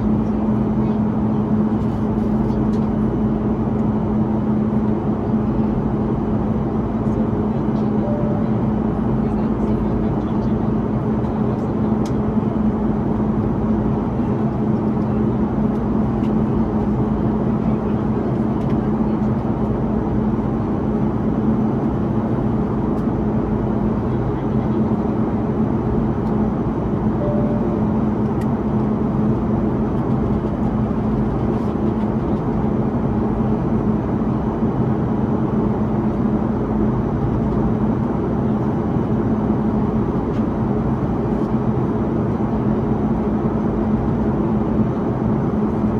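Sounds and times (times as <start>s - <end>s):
steady low hum: 0.0s - 19.1s, 19.7s - 38.3s
aircraft engines droning: 0.0s - 45.9s.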